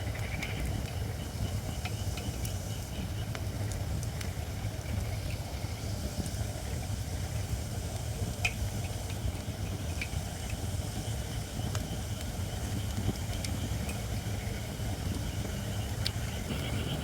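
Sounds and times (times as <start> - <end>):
fire low rumble: 11.3 - 17.0
wood fire crackling: 14.9 - 17.0.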